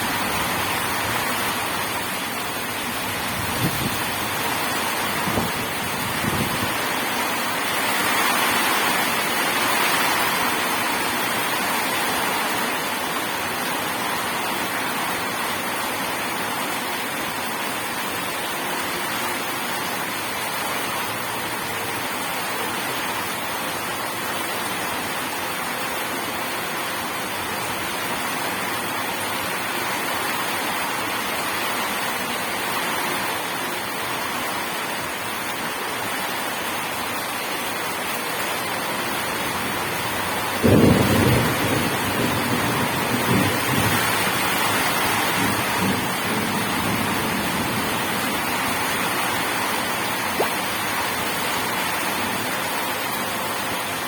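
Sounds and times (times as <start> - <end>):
steady rain: 0.0 - 54.0
thunder rumbling: 39.6 - 49.2.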